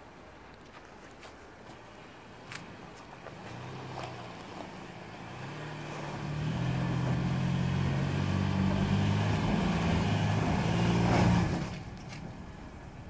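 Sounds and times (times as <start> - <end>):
car engine revving hard: 5.2 - 11.7.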